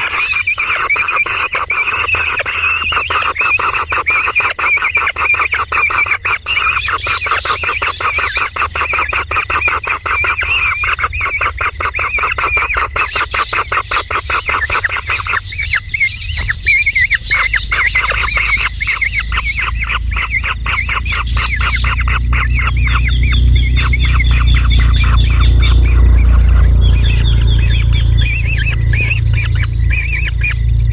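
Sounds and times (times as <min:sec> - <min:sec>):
bird chirping: 0:00.0 - 0:30.9
high pulsing insect-like tone: 0:00.0 - 0:30.9
low rumble: 0:15.4 - 0:30.9.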